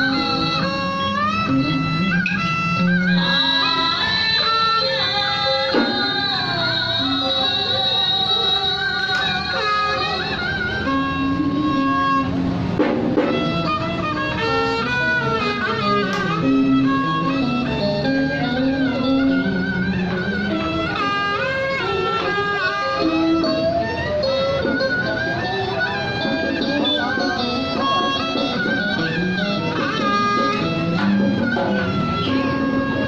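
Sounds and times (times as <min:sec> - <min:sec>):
ceremonial music ensemble: 0:00.0 - 0:33.0
plucked string accompaniment: 0:00.0 - 0:33.0
bowed string melody: 0:09.0 - 0:33.0.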